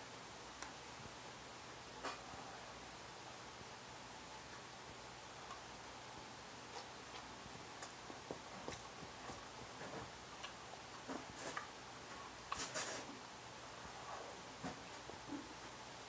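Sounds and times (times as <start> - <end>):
eating clicks and smacks: 6.7 - 9.7, 10.4 - 11.7.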